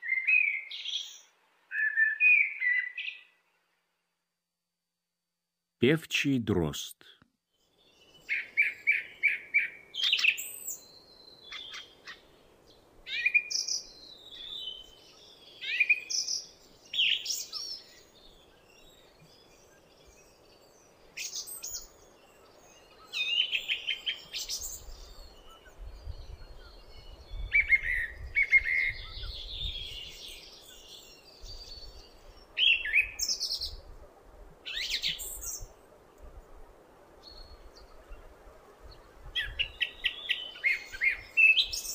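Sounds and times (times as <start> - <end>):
song thrush singing: 0.0 - 3.5, 7.4 - 34.0, 34.6 - 36.3, 37.2 - 41.9.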